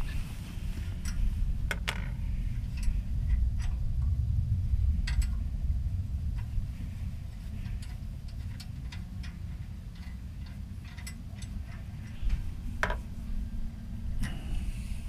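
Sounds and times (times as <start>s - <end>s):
low hum: 0.0s - 15.0s
small metal hardware clicking: 7.6s - 13.0s.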